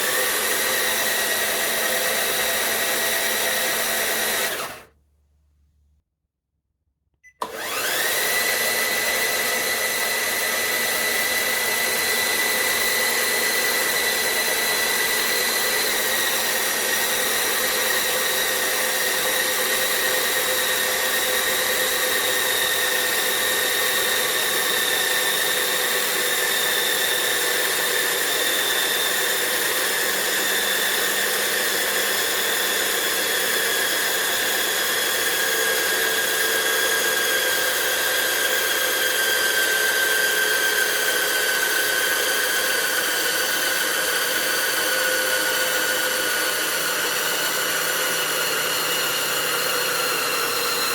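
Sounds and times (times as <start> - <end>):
electric motor whine: 0.0 - 4.9, 7.4 - 50.9.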